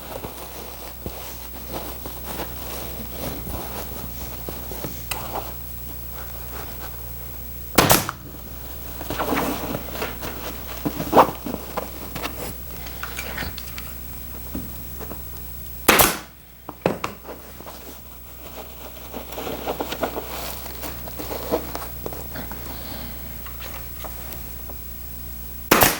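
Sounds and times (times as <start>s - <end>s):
cloth rustling: 0.0s - 7.5s, 8.2s - 15.3s, 17.1s - 24.6s
staple gun cracks: 15.9s - 16.3s.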